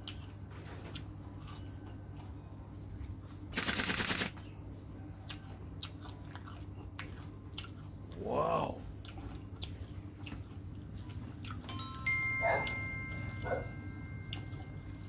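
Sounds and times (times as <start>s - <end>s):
chewing with crunching clicks: 0.0s - 3.6s, 4.4s - 8.2s, 8.8s - 11.7s, 12.5s - 15.0s
loud rapid rattle: 3.5s - 4.4s.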